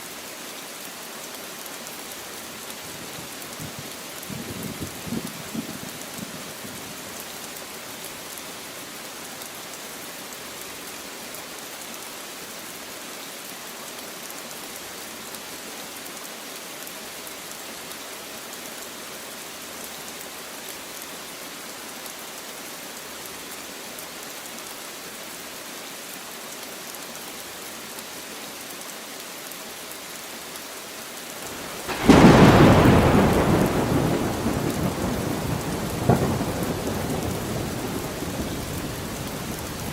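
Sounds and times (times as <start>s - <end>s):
light rain on leaves: 0.0s - 39.9s
thunder clap rumbling: 31.6s - 39.9s.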